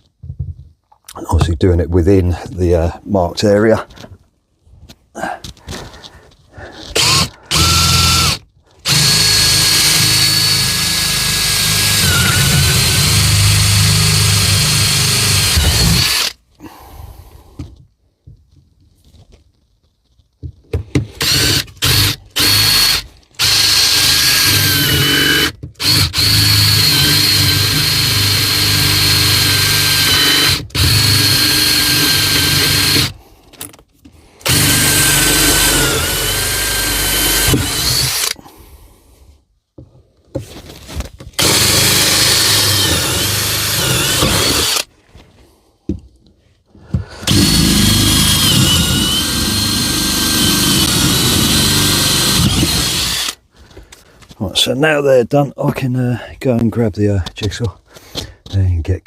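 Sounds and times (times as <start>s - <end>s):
power drill whining: 6.7s - 16.8s, 21.1s - 33.2s, 34.4s - 38.5s, 41.4s - 44.9s, 47.0s - 53.4s.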